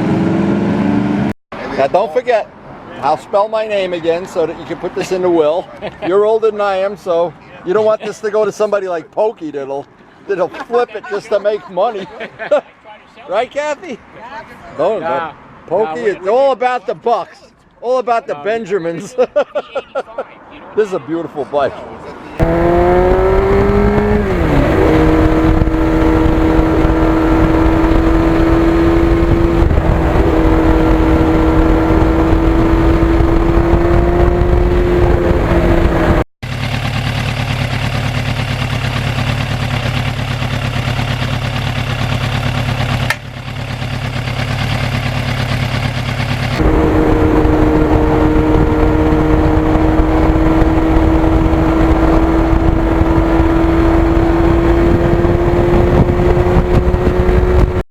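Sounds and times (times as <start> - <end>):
low wind rumble: 22.4 - 36.2, 46.6 - 57.8
motorcycle engine cruising: 22.4 - 57.8.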